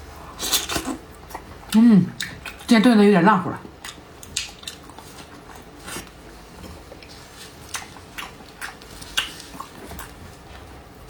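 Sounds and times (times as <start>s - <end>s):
close chewing: 3.6s - 10.9s.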